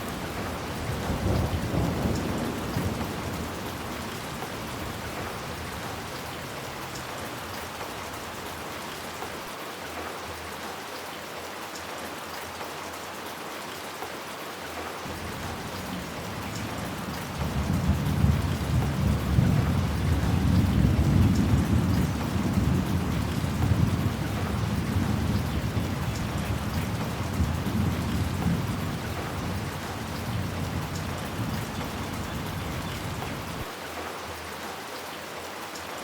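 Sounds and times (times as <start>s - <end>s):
thunder rumbling: 0.0s - 6.6s, 15.1s - 33.7s
steady rain falling: 0.0s - 36.0s.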